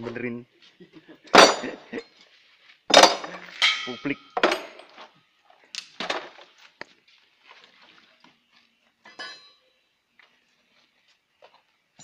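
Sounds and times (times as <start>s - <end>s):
metallic clinks of tools: 9.0s - 9.8s.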